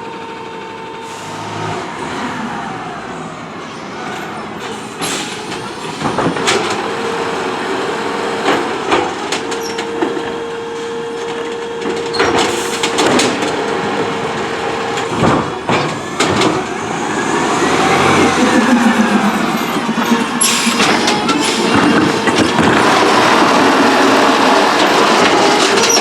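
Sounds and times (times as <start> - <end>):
garbage truck whine: 0.0 - 26.0
sharp knocks and clanks: 4.6 - 7.0, 11.2 - 23.5.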